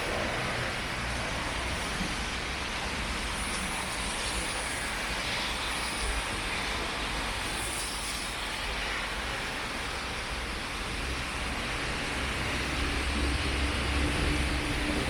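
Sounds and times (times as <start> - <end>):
low traffic rumble: 10.6 - 15.0.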